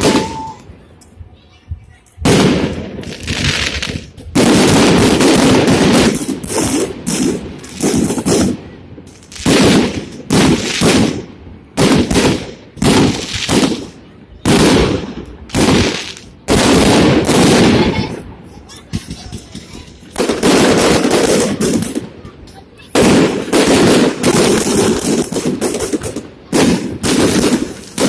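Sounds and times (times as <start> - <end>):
fireworks shell bursts: 0.0 - 1.1.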